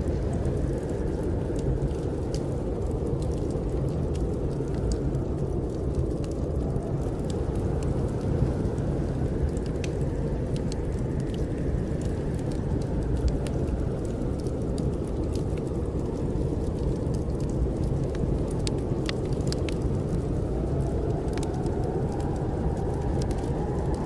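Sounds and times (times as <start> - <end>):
snowstorm wind rumbling: 0.0 - 24.0
wood fire crackling: 0.0 - 24.0.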